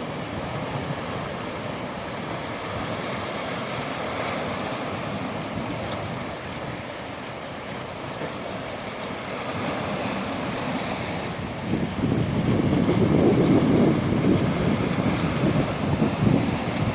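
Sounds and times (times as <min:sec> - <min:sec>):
ocean waves washing in: 0:00.0 - 0:16.9
wind blowing: 0:04.5 - 0:16.9.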